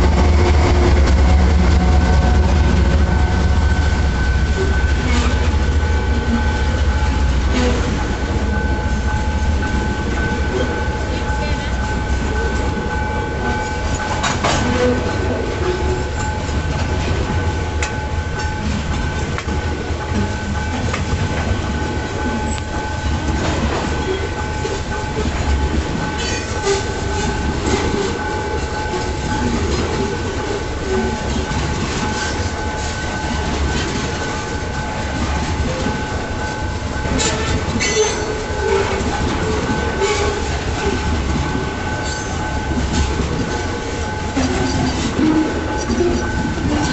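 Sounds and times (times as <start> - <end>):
steady high-pitched tone: 0.0 - 14.5
freight train wagons rumbling: 0.0 - 46.9.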